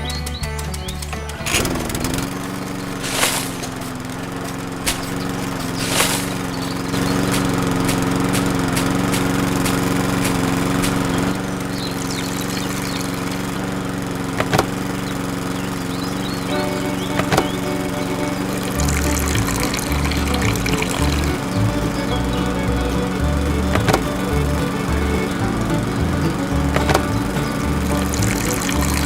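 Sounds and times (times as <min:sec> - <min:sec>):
small motor running: 0:00.6 - 0:29.0
sharp knocks: 0:01.3 - 0:11.4, 0:14.4 - 0:14.8.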